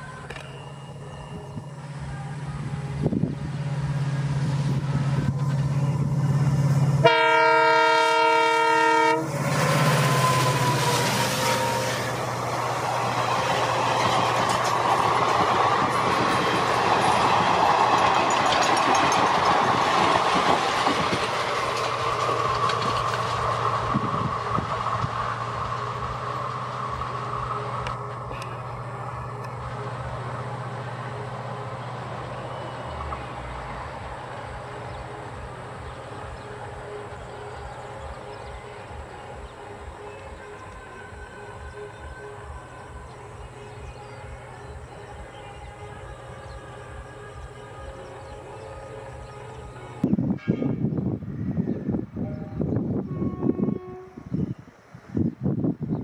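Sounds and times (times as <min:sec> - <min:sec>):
diesel locomotive engine running: 0:00.0 - 0:50.3
train horn blast: 0:04.6 - 0:12.7, 0:46.5 - 0:51.2, 0:52.2 - 0:54.6
coaches clattering over rail joints: 0:12.2 - 0:30.2.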